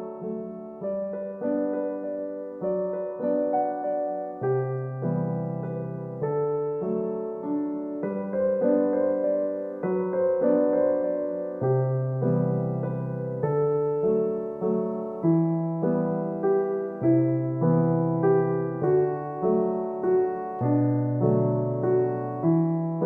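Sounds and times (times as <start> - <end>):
slow gentle piano chords: 0.0 - 23.0.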